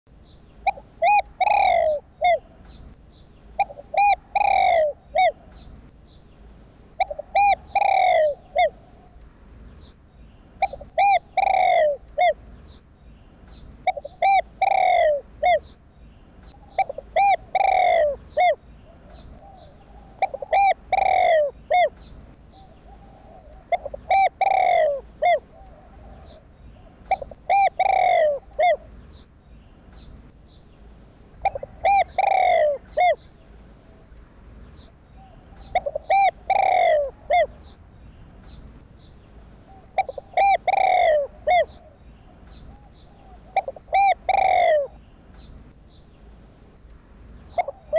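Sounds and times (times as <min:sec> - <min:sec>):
dove cooing: 0:00.6 - 0:02.7, 0:03.5 - 0:05.7, 0:06.9 - 0:09.2, 0:10.6 - 0:12.4, 0:13.8 - 0:15.7, 0:16.5 - 0:29.0, 0:31.4 - 0:34.0, 0:35.2 - 0:37.8, 0:39.7 - 0:45.0, 0:47.5 - 0:47.9.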